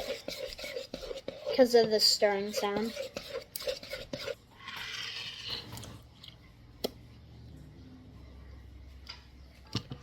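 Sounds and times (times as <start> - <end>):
spoon stirring wet slime: 0.0 - 7.1.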